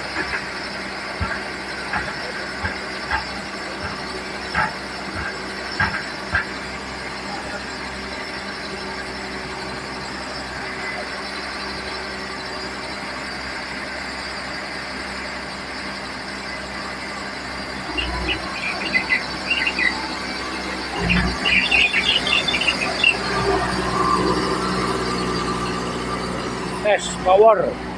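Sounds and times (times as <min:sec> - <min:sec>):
bulldozer diesel engine running: 0:00.0 - 0:27.9
irregular high squeaks: 0:17.9 - 0:25.5.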